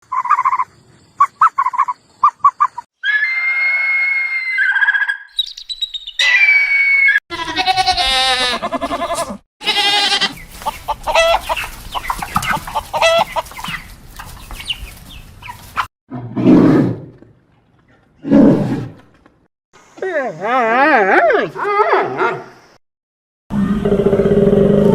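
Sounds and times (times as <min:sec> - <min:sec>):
animal calls: 0:06.2 - 0:13.9.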